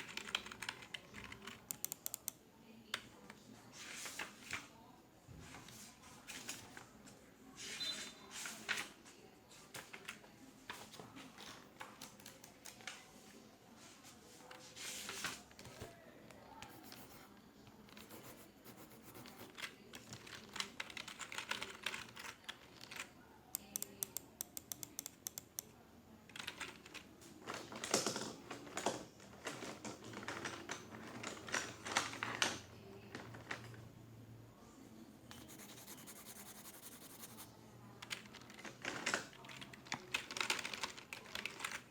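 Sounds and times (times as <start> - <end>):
computer keyboard typing: 0.0 - 2.4, 11.8 - 12.9, 16.6 - 17.3, 17.9 - 25.7, 26.3 - 27.0, 35.3 - 41.9.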